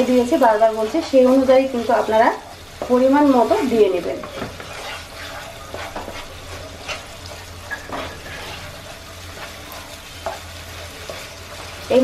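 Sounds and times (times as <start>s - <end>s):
paste sizzling in a pan: 0.0s - 12.0s
wooden spatula scraping a pan: 2.8s - 12.0s.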